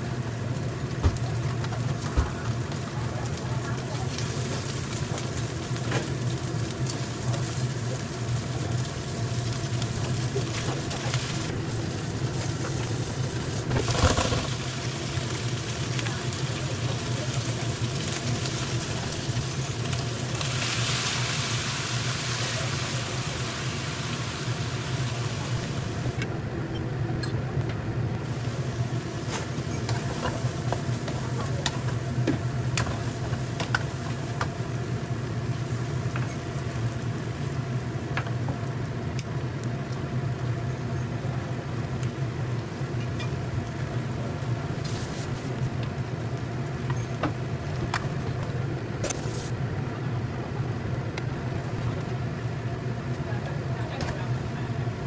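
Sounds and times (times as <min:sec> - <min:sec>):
food sizzling in hot oil: 0:00.0 - 0:26.2, 0:28.2 - 0:38.2, 0:44.7 - 0:47.2.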